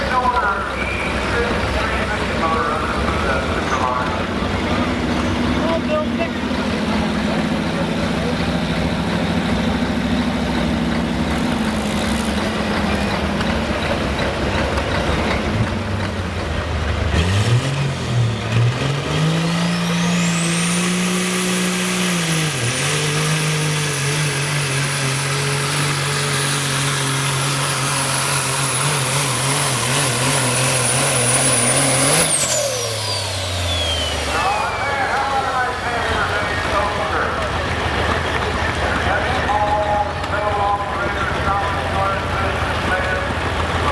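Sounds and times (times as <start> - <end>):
diesel truck engine at full load: 0.0 - 43.9
turbo whine: 28.5 - 36.4.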